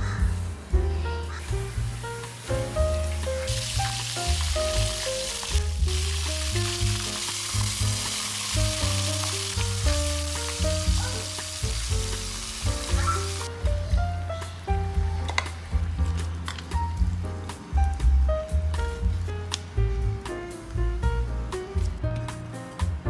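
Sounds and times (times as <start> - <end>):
background music with bass: 0.0 - 23.0
deep-frying sizzle: 0.0 - 23.0.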